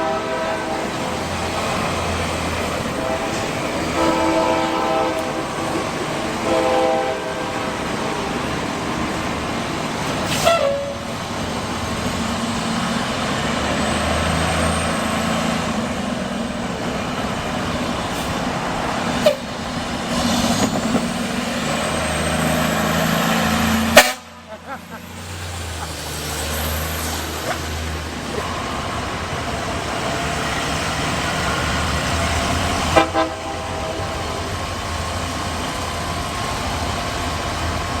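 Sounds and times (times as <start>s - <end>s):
train horn blast: 0.0s - 1.9s, 2.7s - 8.5s, 10.3s - 11.1s, 19.2s - 19.6s, 23.6s - 24.4s, 32.2s - 34.6s
diesel train passing: 0.0s - 38.0s.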